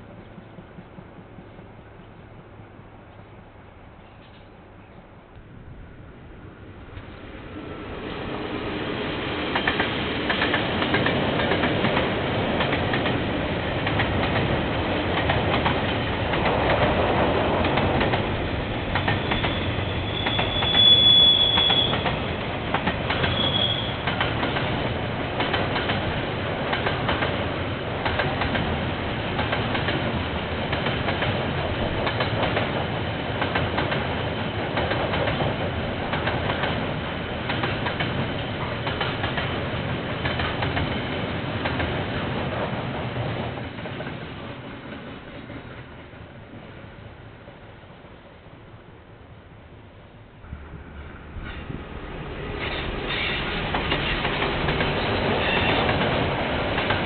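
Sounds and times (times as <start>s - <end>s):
train rumbling: 0.0s - 57.0s
high-pitched wheel squeal: 19.2s - 22.1s, 23.2s - 24.1s
wheels clicking over rail joints: 21.5s - 42.0s, 52.5s - 57.0s.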